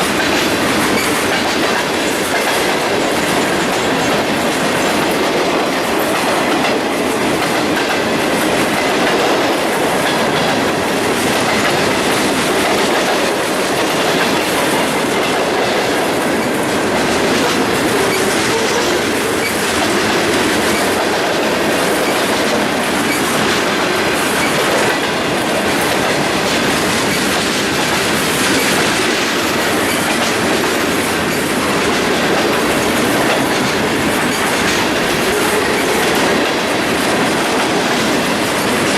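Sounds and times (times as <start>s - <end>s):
train wheels clicking over rail joints: 0.0s - 38.9s.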